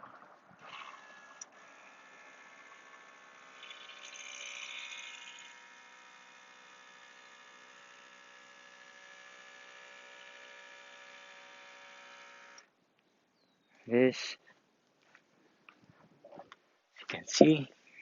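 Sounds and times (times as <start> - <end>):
electric air compressor whining: 0.6 - 12.6.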